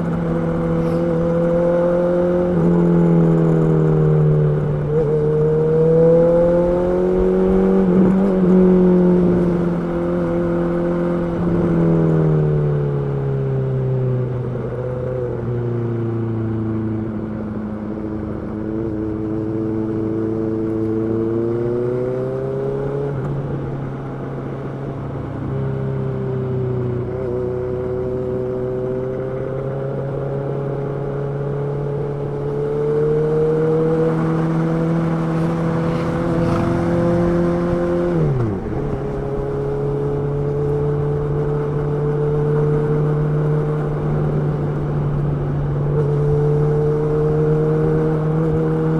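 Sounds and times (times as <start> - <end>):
motorcycle engine revving: 27.0 - 48.9.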